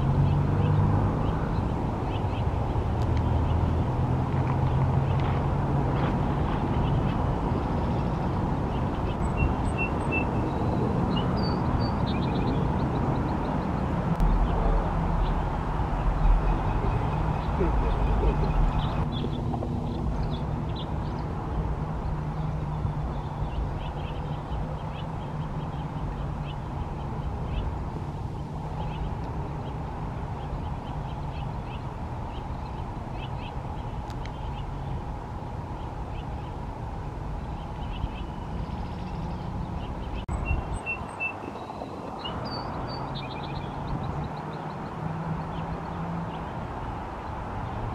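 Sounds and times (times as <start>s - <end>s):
small birds chirping: 0.0s - 47.9s
low rumble: 13.2s - 22.1s.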